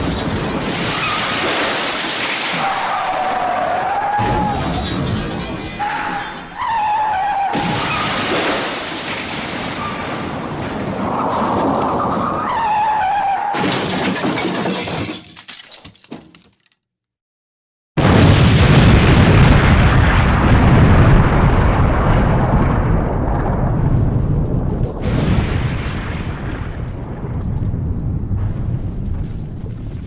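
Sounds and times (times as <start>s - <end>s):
glass shattering: 0.0s - 9.4s, 13.6s - 16.7s.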